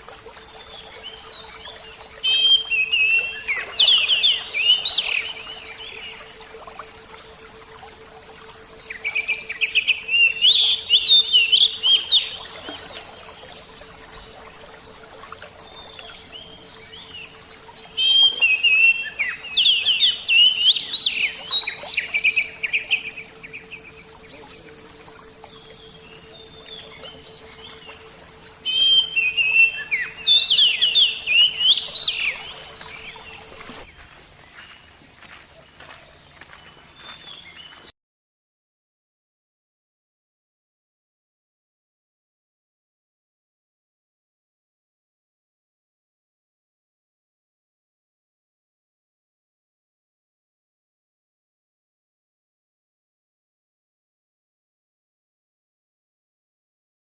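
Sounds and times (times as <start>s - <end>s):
faint steady hum: 0.0s - 37.8s.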